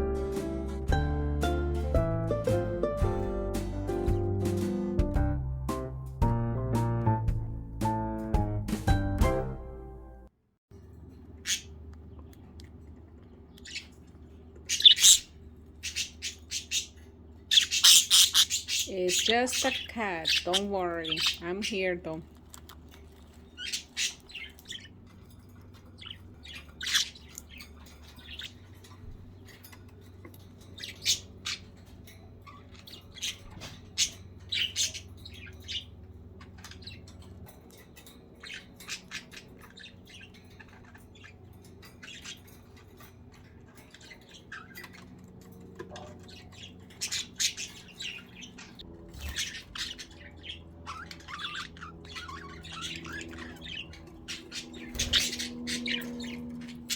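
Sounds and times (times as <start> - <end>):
steady low hum: 10.8 - 56.9
budgerigars chirping and squawking: 11.4 - 12.5, 13.5 - 56.9.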